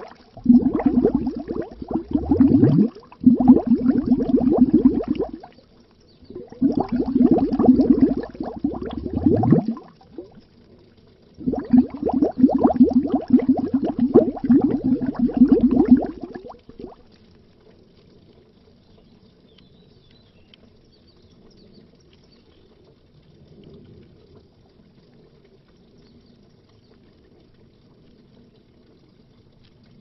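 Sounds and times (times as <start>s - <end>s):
underwater bubbling: 0.0s - 19.5s.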